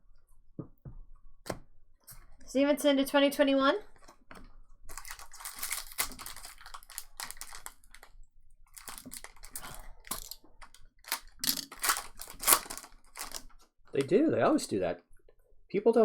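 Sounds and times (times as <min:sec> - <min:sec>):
trading cards and wrappers rustling: 0:04.0 - 0:14.1.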